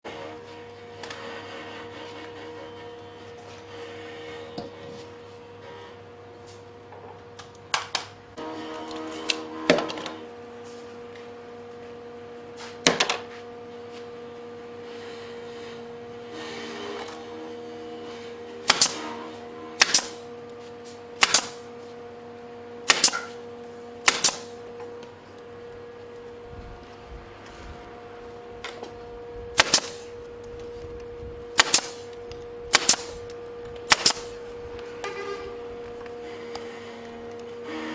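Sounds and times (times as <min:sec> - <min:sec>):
sharp hammer strikes: 0:18.6 - 0:19.1, 0:19.8 - 0:20.2, 0:21.2 - 0:21.6, 0:22.9 - 0:23.4, 0:24.0 - 0:24.5, 0:29.6 - 0:30.0, 0:31.6 - 0:32.1, 0:32.7 - 0:33.2, 0:33.9 - 0:34.4.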